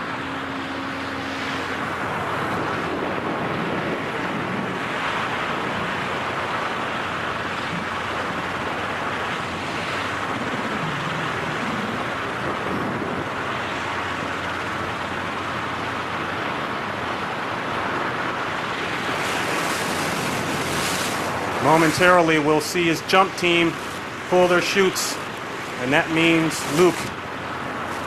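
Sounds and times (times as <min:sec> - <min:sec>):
wind rushing on microphone: 0:00.0 - 0:15.5, 0:16.1 - 0:28.0.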